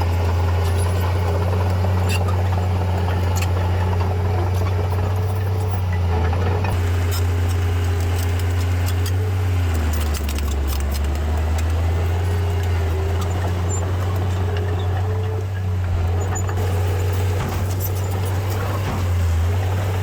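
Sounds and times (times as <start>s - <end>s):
heavy machinery diesel engine: 0.0s - 20.0s
light metallic rattles and clicks: 6.6s - 20.0s.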